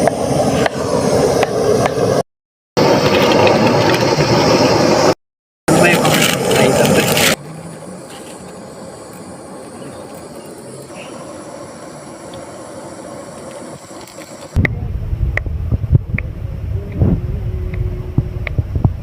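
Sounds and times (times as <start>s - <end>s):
steady hiss: 5.7s - 19.0s
loud low rumble: 14.6s - 19.0s.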